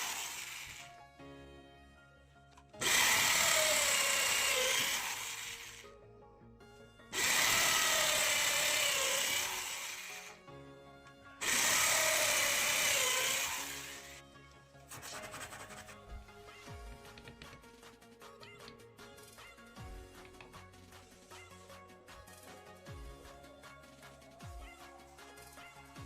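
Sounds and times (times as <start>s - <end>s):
power drill running: 0.0s - 1.1s, 2.8s - 5.9s, 7.1s - 10.4s, 11.4s - 14.2s
background music: 0.0s - 26.0s.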